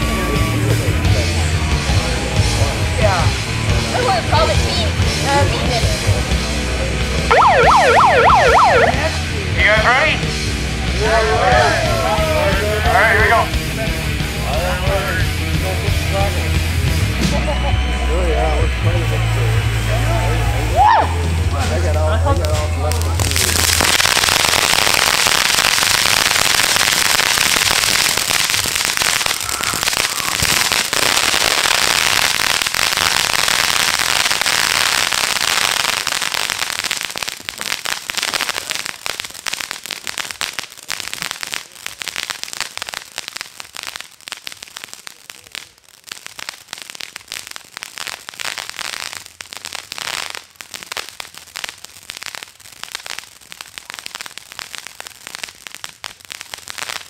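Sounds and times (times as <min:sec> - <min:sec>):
fireworks crackling: 0:00.0 - 0:57.0
fireworks pops: 0:21.6 - 0:57.0.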